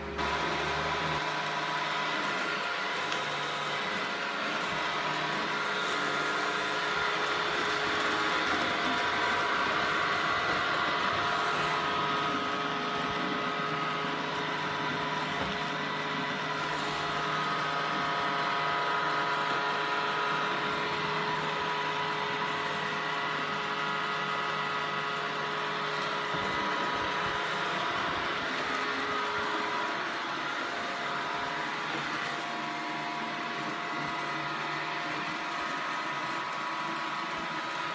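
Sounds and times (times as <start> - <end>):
robot vacuum cleaner whirring: 0.0 - 37.9.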